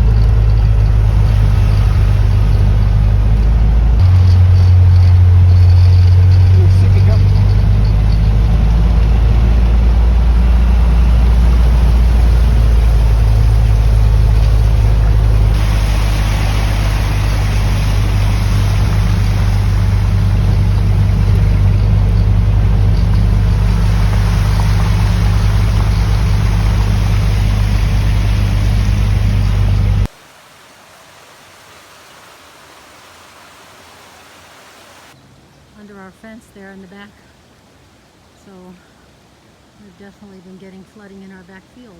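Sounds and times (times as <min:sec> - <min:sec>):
vehicle engine humming: 0:00.0 - 0:35.2
water rushing and splashing: 0:00.0 - 0:41.9
faint steady hiss: 0:10.3 - 0:41.9.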